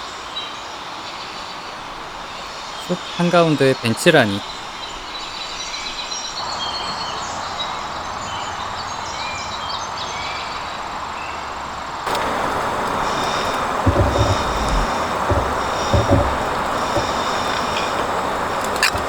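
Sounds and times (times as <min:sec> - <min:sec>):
steady forest hiss: 0:00.0 - 0:08.3, 0:11.9 - 0:19.0
small birds chirping: 0:12.1 - 0:19.0.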